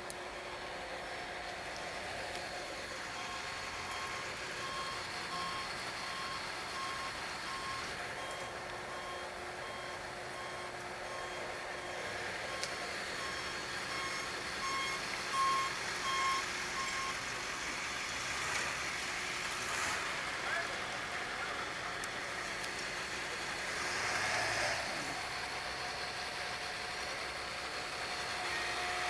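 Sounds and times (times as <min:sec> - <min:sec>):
street traffic noise: 0:00.0 - 0:29.0
reversing alarm beeping: 0:03.1 - 0:17.2.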